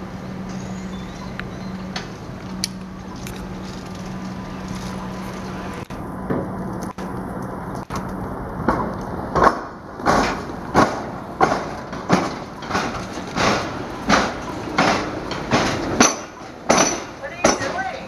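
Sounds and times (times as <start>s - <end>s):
steel wheels clattering over rail crossing: 8.0s - 18.0s.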